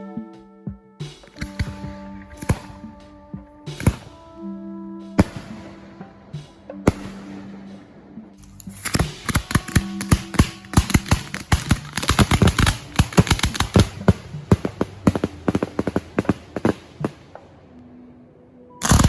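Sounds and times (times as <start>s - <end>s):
firecrackers popping: 1.2s - 4.2s, 8.4s - 17.4s.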